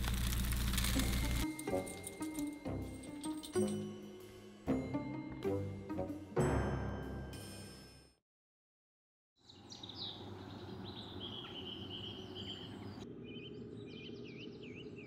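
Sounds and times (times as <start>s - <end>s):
birds chirping and trilling: 9.4s - 15.0s.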